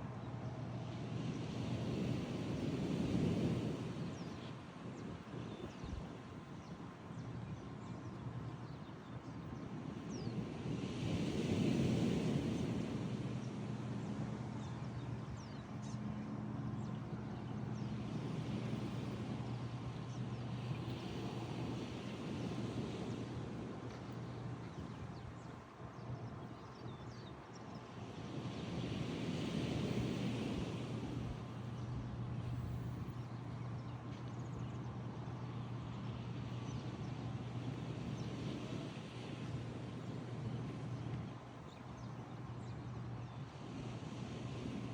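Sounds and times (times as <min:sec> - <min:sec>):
surf and wind noise: 0:00.0 - 0:44.9
constant background rush: 0:11.8 - 0:44.9.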